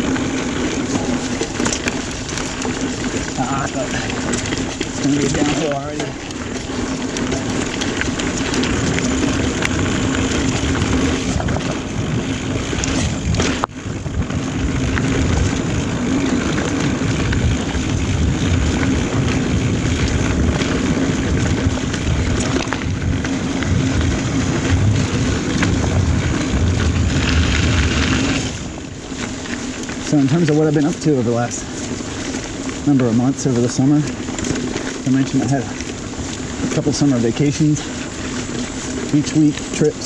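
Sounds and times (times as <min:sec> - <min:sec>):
wind on microphone: 0:00.0 - 0:30.3
bike tyres rumbling and rattling: 0:00.0 - 0:40.0.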